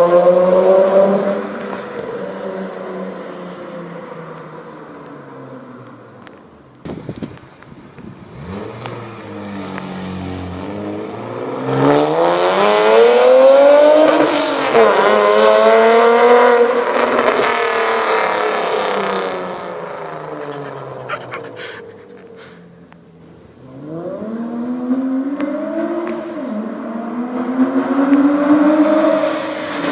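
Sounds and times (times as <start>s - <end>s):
car engine accelerating past: 8.2s - 21.5s, 23.6s - 29.9s.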